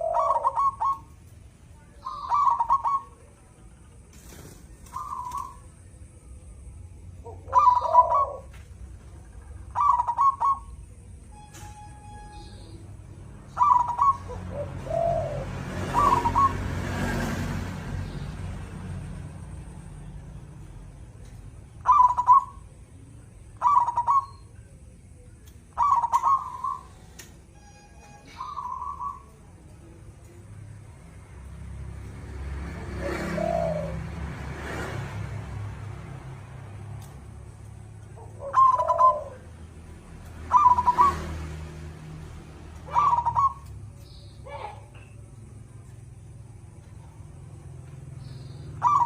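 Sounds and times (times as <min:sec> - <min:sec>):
dove cooing: 0:00.0 - 0:01.2, 0:02.0 - 0:03.3, 0:04.9 - 0:05.7, 0:07.2 - 0:08.6, 0:09.6 - 0:10.8, 0:13.6 - 0:16.7, 0:21.8 - 0:22.7, 0:23.6 - 0:24.4, 0:25.7 - 0:27.0, 0:33.0 - 0:34.2, 0:38.1 - 0:39.5, 0:40.5 - 0:41.2, 0:42.8 - 0:43.7, 0:48.8 - 0:49.0.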